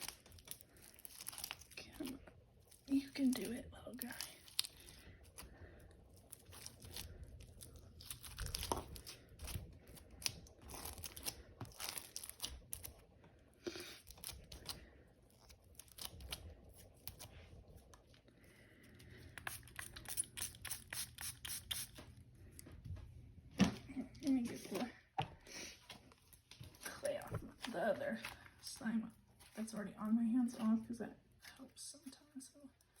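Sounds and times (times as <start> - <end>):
sticky slime crackling and tearing: 0.0 - 5.5, 6.2 - 13.1, 13.9 - 18.0.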